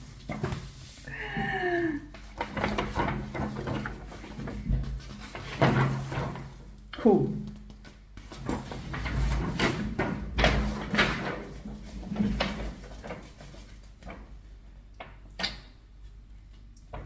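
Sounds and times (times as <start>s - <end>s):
cardboard and paper rustling: 2.1s - 6.6s, 7.6s - 14.3s.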